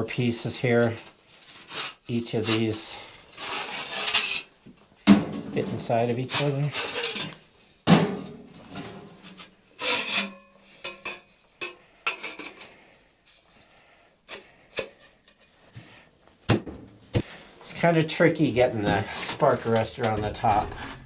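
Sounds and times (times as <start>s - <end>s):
sheet metal rubbing and scraping: 3.3s - 4.5s, 8.0s - 12.7s.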